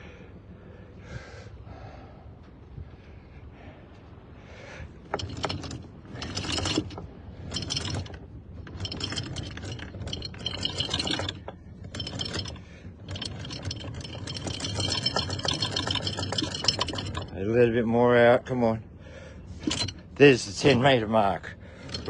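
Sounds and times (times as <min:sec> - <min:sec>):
anchor chain rattling: 0:04.8 - 0:18.6, 0:19.4 - 0:22.0.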